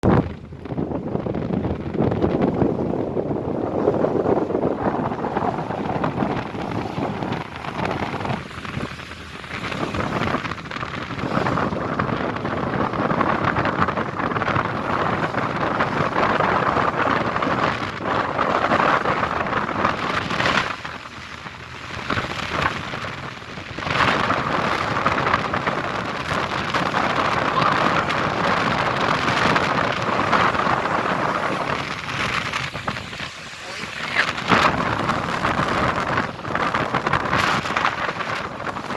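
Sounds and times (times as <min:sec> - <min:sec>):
rushing water: 0:00.0 - 0:38.9
wind buffeting microphone: 0:00.0 - 0:38.9.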